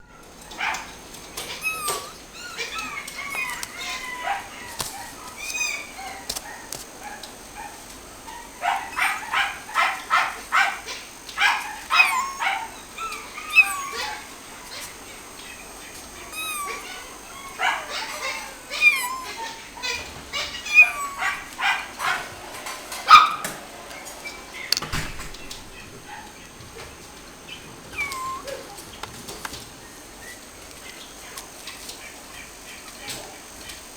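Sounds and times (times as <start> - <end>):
small pet animal calling: 0.2 - 7.3, 8.3 - 23.6, 25.4 - 33.4
kitten meowing: 1.4 - 6.2, 11.9 - 14.3, 16.3 - 21.6, 27.8 - 28.8.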